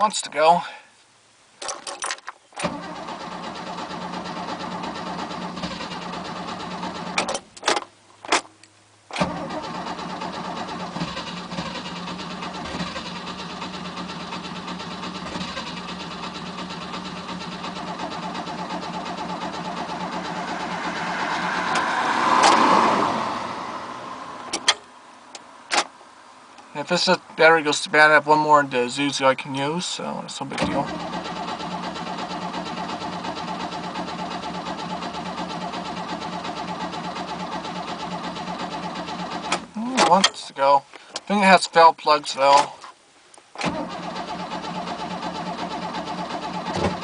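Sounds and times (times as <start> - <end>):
starter cranking engine: 2.6 - 7.4, 9.1 - 22.7, 30.5 - 40.4, 43.6 - 47.0.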